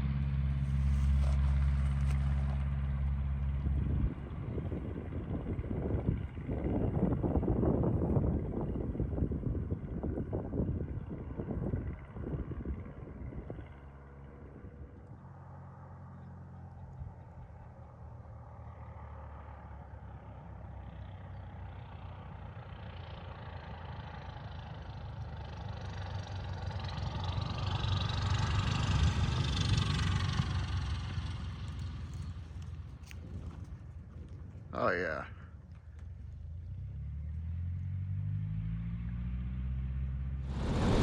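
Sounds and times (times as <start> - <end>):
propeller airplane engine approaching: 0.0 - 41.0
wind gusts on microphone: 3.7 - 13.7, 40.4 - 41.0.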